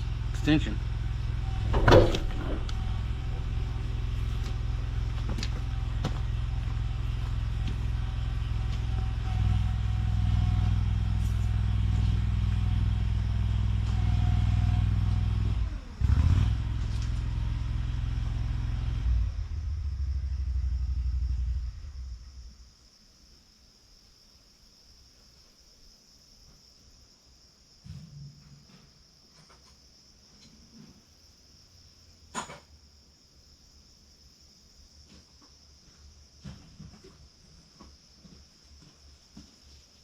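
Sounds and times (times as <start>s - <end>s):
tractor engine idling: 0.0s - 15.9s
knocks: 1.6s - 3.0s.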